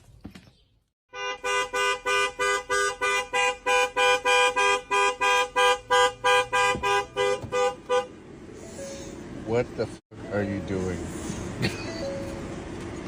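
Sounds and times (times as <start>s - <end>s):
two-tone car horn toots: 1.1s - 8.1s.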